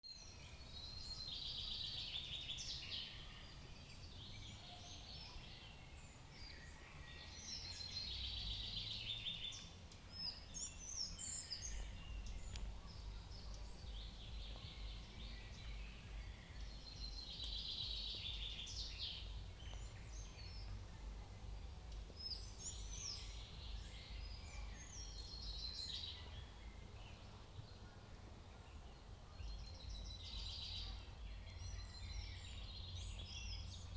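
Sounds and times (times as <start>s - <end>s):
songbirds singing: 0.0s - 33.9s
steady low rumble: 9.8s - 33.9s.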